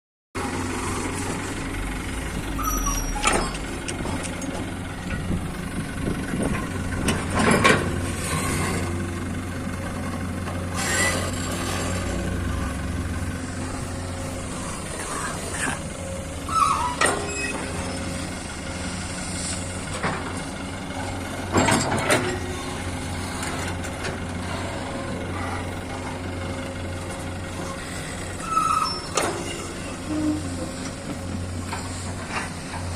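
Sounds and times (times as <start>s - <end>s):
diesel machinery running: 0.4s - 32.9s
brief squeals: 2.5s - 3.7s, 10.7s - 12.0s, 14.5s - 15.8s, 16.4s - 18.2s, 27.6s - 30.7s.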